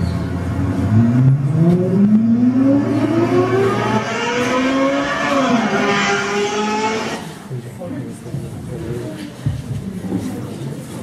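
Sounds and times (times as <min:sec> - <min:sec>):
car engine accelerating: 0:00.0 - 0:07.5.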